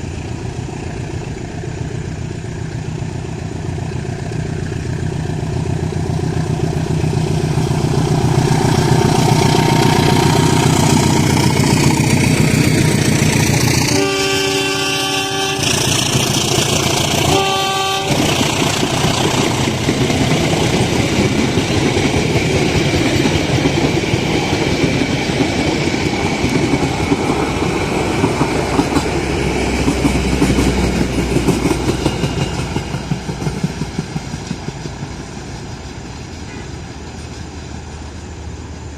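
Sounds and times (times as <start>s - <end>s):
diesel locomotive engine: 0.0s - 38.9s
train wheels clacking on rails: 5.4s - 38.3s
train horn blasts: 13.8s - 15.8s, 17.1s - 18.5s, 36.4s - 36.8s.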